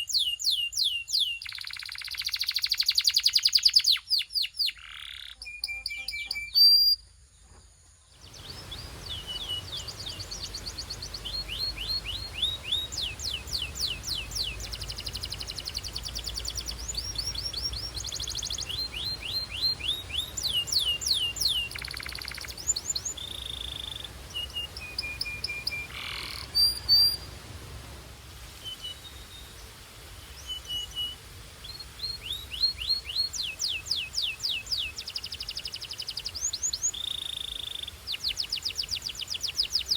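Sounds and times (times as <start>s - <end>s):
canary singing: 0.1s - 7.0s, 8.2s - 27.2s.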